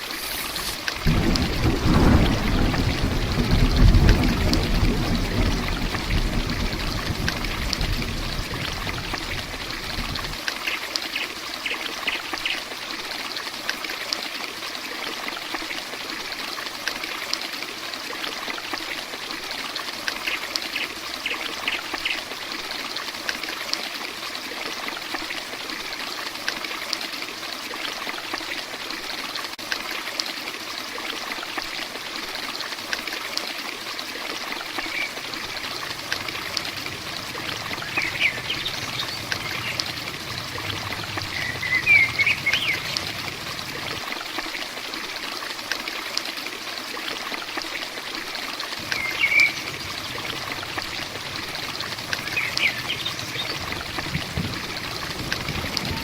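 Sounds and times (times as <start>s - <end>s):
heavy rain hissing: 0.0s - 10.5s, 34.6s - 44.4s, 48.8s - 56.0s
water splashing and trickling: 0.0s - 56.0s
deep low rumble: 35.4s - 44.0s.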